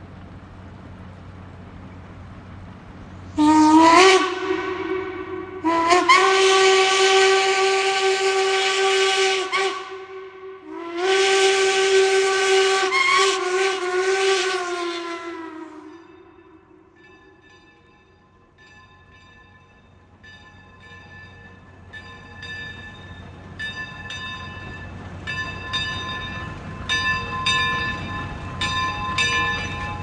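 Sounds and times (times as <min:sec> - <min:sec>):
steam locomotive whistle: 0:03.3 - 0:16.9.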